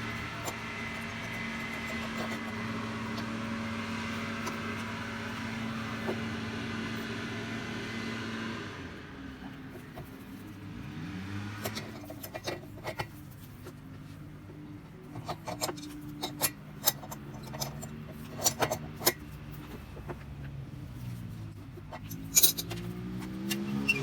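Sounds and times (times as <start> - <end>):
metallic clicks of hand tools: 11.6 - 13.8, 15.2 - 20.1, 21.9 - 24.0.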